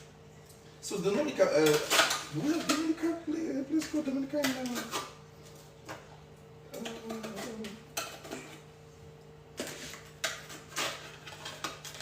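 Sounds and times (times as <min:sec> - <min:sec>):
utensils and pots clinking: 0:01.5 - 0:05.2, 0:06.7 - 0:08.7, 0:09.6 - 0:12.0.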